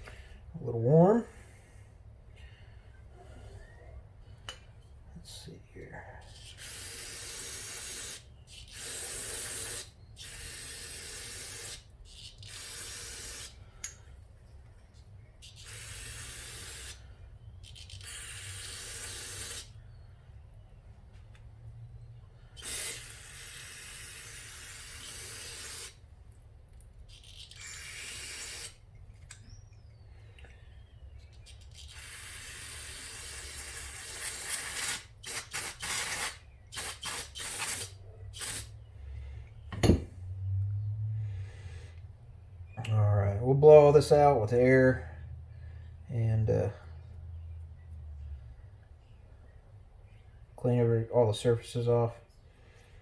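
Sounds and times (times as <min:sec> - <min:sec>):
aerosol spray hissing: 0:06.3 - 0:11.8, 0:12.4 - 0:13.6, 0:15.5 - 0:17.0, 0:17.8 - 0:19.7, 0:22.6 - 0:26.0, 0:27.3 - 0:28.8, 0:31.7 - 0:38.7.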